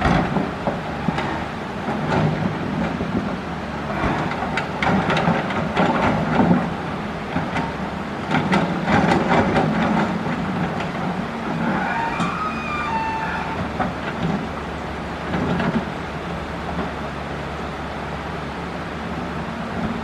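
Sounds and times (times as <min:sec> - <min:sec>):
excavator diesel engine under load: 0:00.0 - 0:20.0
high squeal: 0:11.6 - 0:13.7.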